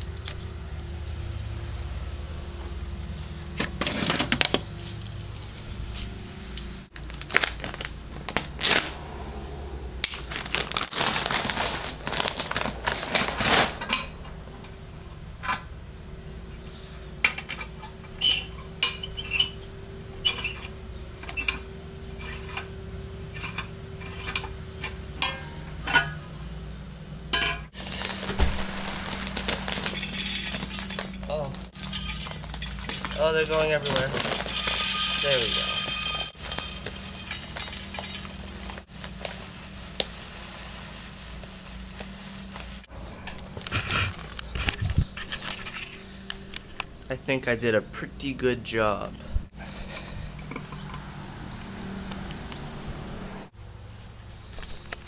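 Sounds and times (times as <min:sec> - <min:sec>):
rattling rushing noise: 0:27.8 - 0:38.9
light clinks and knocks: 0:49.8 - 0:51.1.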